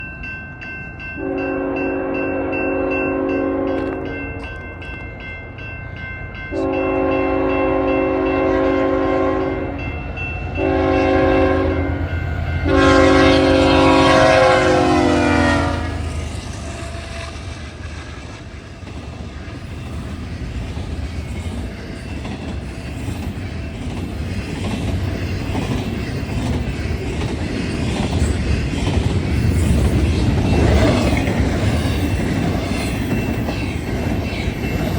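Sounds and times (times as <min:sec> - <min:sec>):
train cars rumbling on rails: 0:00.0 - 0:34.9
locomotive horn blasts: 0:01.2 - 0:04.4, 0:06.5 - 0:09.8, 0:10.6 - 0:12.0, 0:12.6 - 0:16.2.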